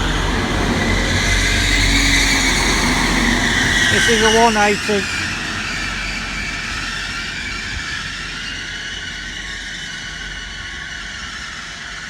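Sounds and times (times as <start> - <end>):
diesel train running: 0.0 - 12.0.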